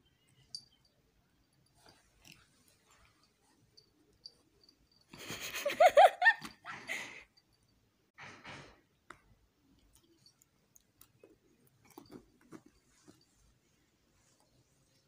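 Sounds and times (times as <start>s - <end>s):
person laughing breathily: 5.1s - 7.3s.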